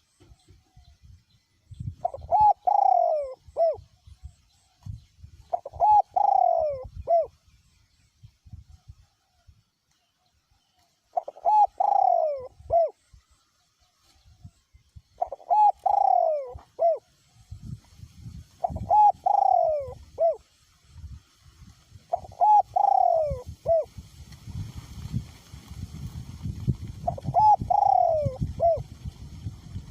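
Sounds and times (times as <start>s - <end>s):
wind rumble on microphone: 0.2s - 9.7s, 14.0s - 29.9s
dove cooing: 2.0s - 3.8s, 5.5s - 7.4s, 11.1s - 13.0s, 15.2s - 17.2s, 18.6s - 20.5s, 22.1s - 23.9s, 27.0s - 29.0s.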